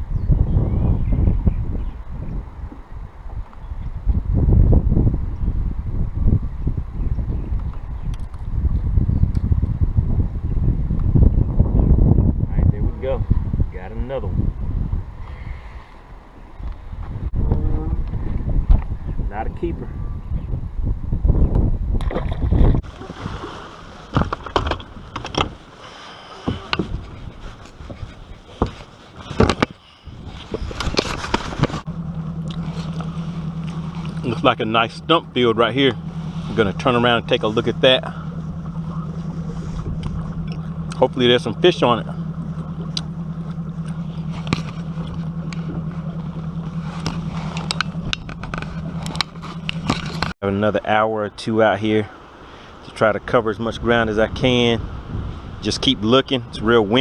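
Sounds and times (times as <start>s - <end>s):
wind buffeting microphone: 0.0s - 25.8s, 26.4s - 50.4s, 53.0s - 57.0s
boat motor humming: 19.9s - 50.4s
water slapping against boat hull: 22.0s - 25.6s.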